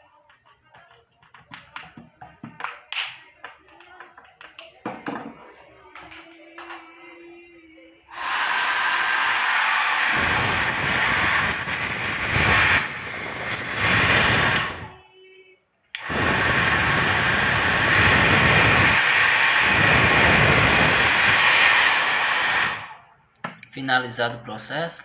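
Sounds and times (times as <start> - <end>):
hair dryer blowing: 8.1 - 14.9, 16.0 - 23.1.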